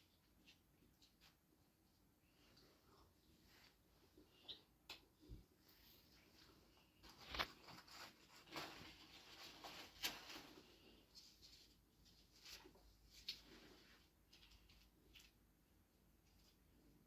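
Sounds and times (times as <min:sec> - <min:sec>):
soft rustling: 0:05.2 - 0:15.6.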